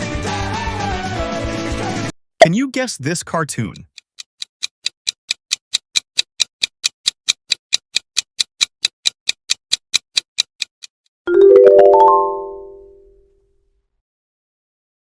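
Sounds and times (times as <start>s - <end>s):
fast clock ticks: 2.8s - 11.0s.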